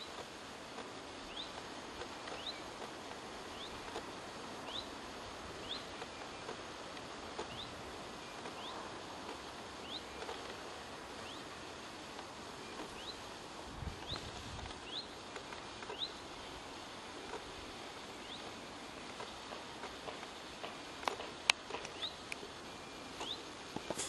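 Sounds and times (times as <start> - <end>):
background hiss: 0.0 - 24.0.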